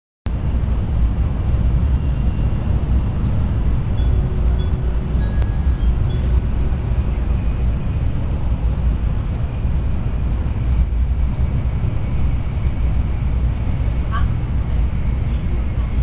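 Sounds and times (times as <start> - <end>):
train running rumble: 0.3 - 16.0.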